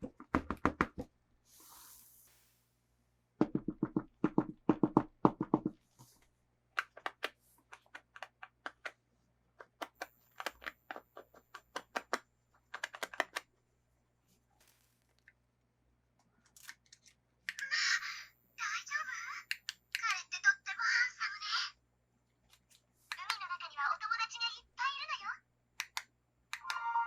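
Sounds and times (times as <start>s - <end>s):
plastic toy packaging clicks: 9.6s - 13.5s, 16.4s - 17.6s.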